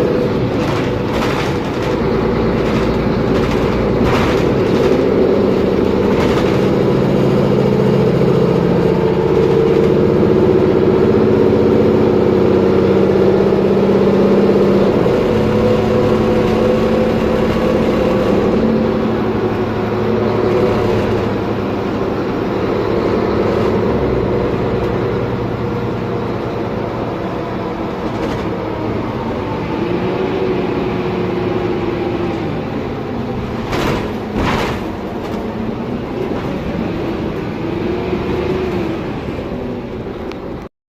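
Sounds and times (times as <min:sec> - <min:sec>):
bus diesel engine running: 0:00.0 - 0:40.7
drivetrain whine: 0:00.0 - 0:40.7.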